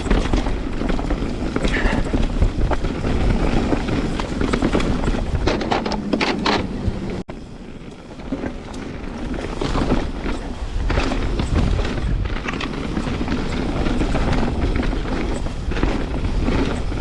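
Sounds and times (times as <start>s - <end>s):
bike clattering knocks: 0.0s - 7.2s
wind on microphone: 0.0s - 7.2s, 9.0s - 17.0s
bike tyres rumbling over rocks: 0.0s - 17.0s.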